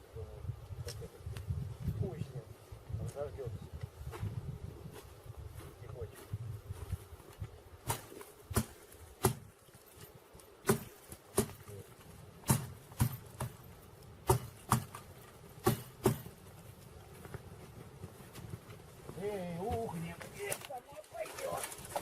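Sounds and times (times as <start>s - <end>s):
firewood chopping knocks: 7.8s - 9.5s, 10.6s - 11.8s, 12.4s - 16.3s.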